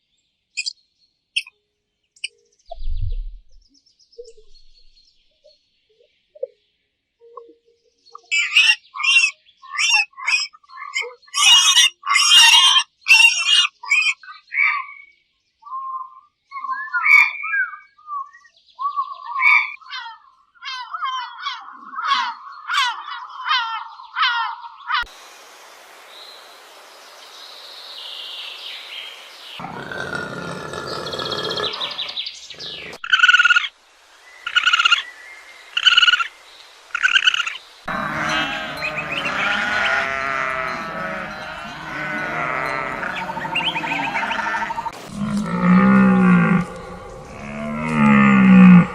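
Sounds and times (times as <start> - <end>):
deeper animal calls: 29.6 - 33.4, 37.0 - 48.9
quick chirping animal calls: 29.6 - 33.8, 36.9 - 48.9.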